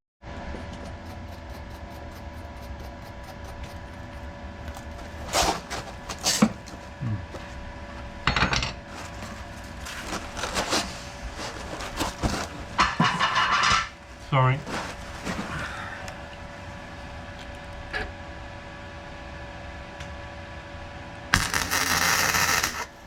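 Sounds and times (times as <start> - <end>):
steady hum: 0.3 - 23.0
welding crackle: 21.3 - 23.0.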